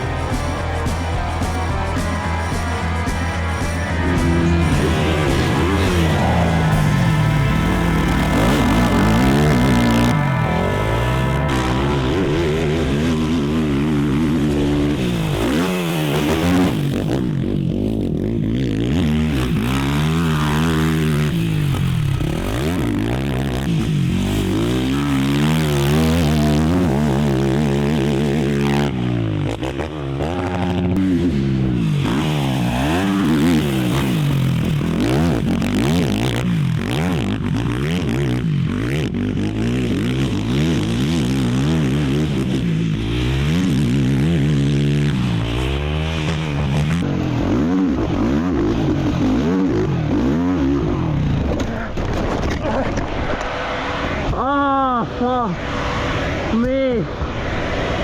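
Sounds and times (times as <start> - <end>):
quad engine revving: 0.0 - 57.9.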